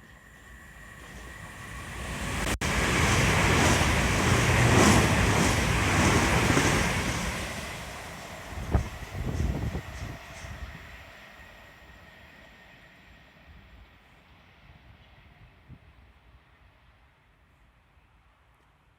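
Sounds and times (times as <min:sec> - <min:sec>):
train rushing past: 0:00.1 - 0:15.5
wind buffeting microphone: 0:02.3 - 0:11.0.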